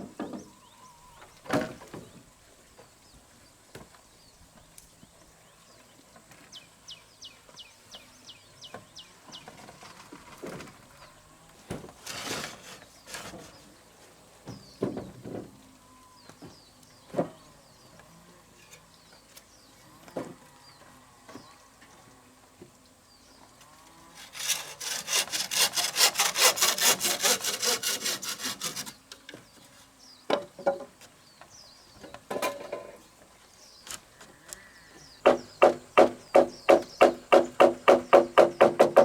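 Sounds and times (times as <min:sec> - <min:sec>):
hand saw cutting wood: 0:12.0 - 0:13.6, 0:24.1 - 0:29.1, 0:35.2 - 0:39.0
wood knocks: 0:35.2 - 0:39.0.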